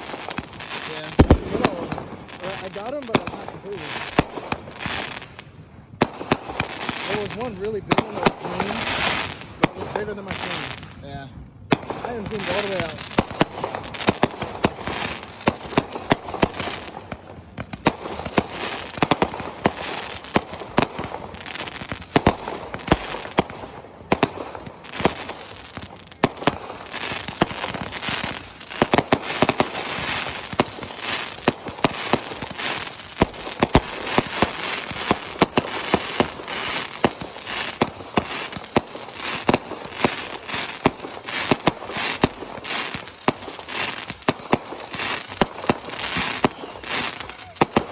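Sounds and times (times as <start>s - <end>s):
fireworks bangs: 0.0s - 47.9s
fireworks crackle: 0.0s - 47.9s
high falling whistles: 0.9s - 2.9s, 27.1s - 47.9s.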